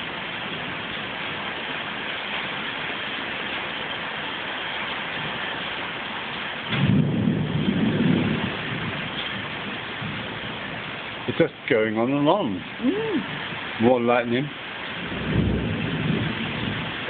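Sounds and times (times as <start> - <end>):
heavy rain pouring: 0.0 - 17.0
rumble of thunder: 6.7 - 11.9, 14.8 - 17.0.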